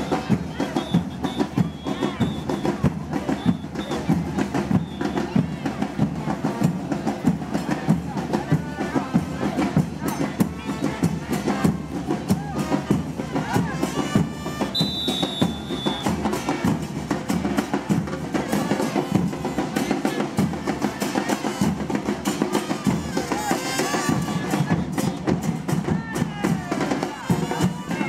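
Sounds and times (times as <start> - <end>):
high whistle: 0.0 - 4.0, 4.7 - 5.3, 14.6 - 16.2
bass drums: 0.0 - 28.0
cymbals: 9.5 - 28.0.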